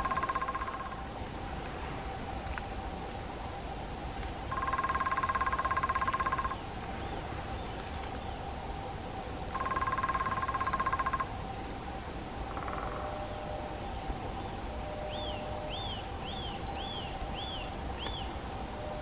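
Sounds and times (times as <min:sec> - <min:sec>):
woodpecker drumming: 0:00.0 - 0:01.0, 0:04.5 - 0:06.6, 0:09.5 - 0:11.3, 0:12.5 - 0:13.2.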